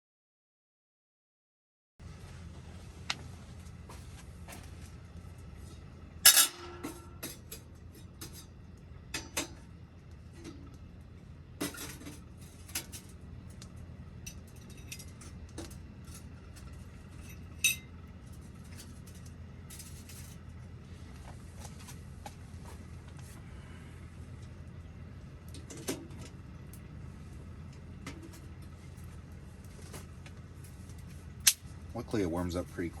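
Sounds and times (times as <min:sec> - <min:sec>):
metal stove clanking: 0:06.2 - 0:09.7, 0:11.6 - 0:13.2, 0:14.2 - 0:18.0, 0:25.5 - 0:26.8.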